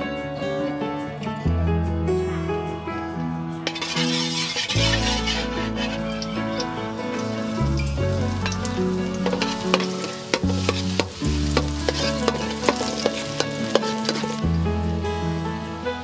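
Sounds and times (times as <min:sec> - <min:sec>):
background music with bass line: 0:00.0 - 0:16.0
noodles sizzling in a pan: 0:03.6 - 0:16.0
utensil clicking against pan: 0:08.4 - 0:14.4.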